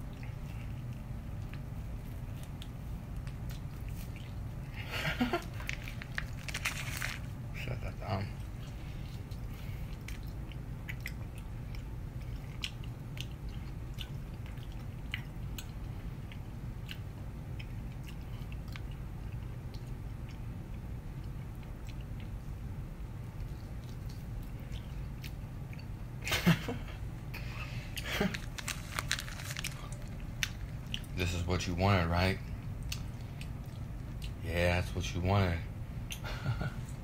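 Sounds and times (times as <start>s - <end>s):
person chewing steak: 0.0s - 7.5s, 8.3s - 22.6s, 27.9s - 31.2s, 32.4s - 34.4s
steady low hum: 0.0s - 37.0s.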